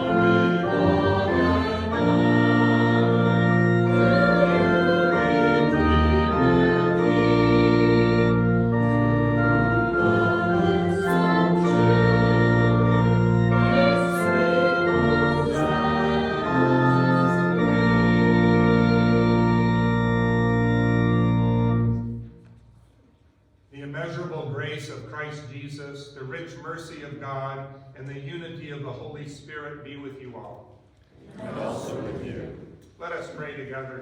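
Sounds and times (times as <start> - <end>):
voices singing: 0.0 - 8.8, 9.4 - 19.6, 31.2 - 32.7
organ playing a hymn: 0.0 - 22.6, 23.8 - 27.5.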